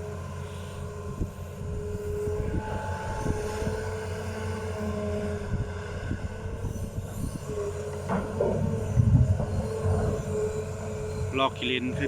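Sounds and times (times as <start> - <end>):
hydraulic whine: 0.0 - 12.0
excavator knocks: 8.0 - 10.2.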